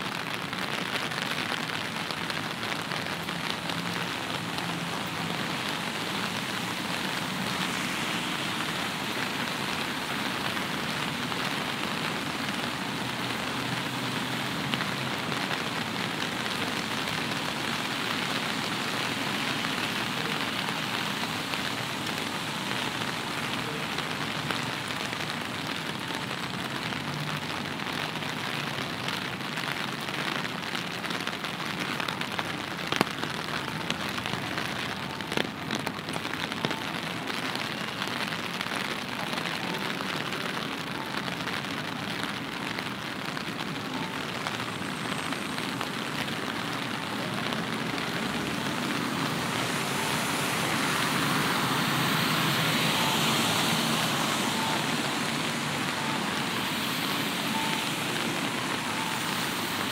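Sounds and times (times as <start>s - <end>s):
steady rain patter: 0.0s - 59.9s.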